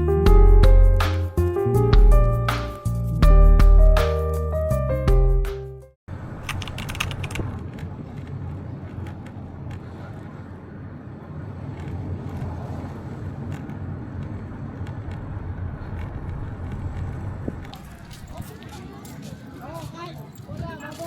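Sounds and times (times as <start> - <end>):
low rumble of traffic: 6.1 - 21.0.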